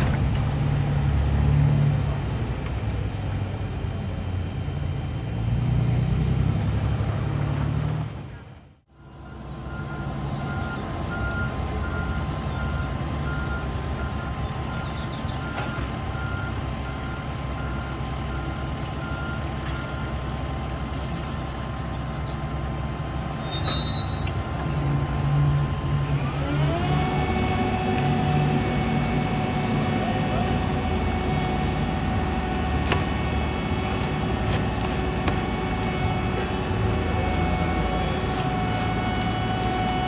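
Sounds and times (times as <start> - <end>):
heavy diesel machinery running: 0.0 - 40.0
backup alarm beeping: 35.3 - 40.0.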